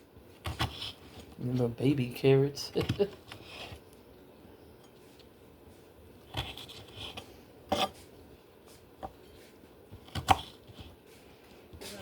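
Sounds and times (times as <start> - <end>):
low room noise: 0.0 - 12.0.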